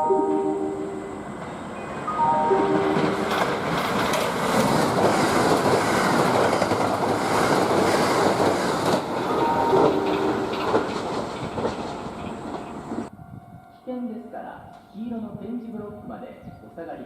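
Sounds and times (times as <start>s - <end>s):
train rumble and wheel clatter: 0.0s - 17.0s
short chime tones: 2.1s - 3.2s.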